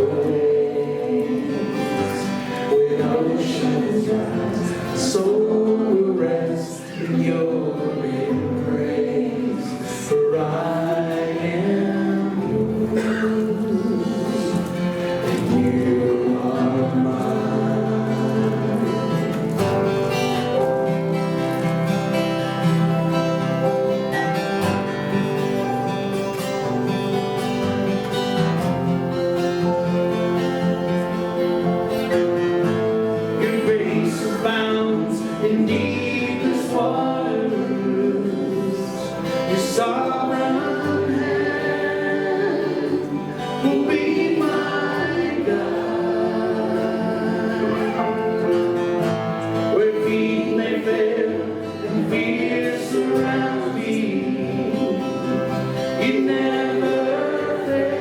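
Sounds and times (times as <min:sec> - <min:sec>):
voices singing praise song: 0:00.0 - 0:21.2, 0:33.0 - 0:48.7, 0:49.3 - 0:58.0
acoustic guitar: 0:00.0 - 0:58.0.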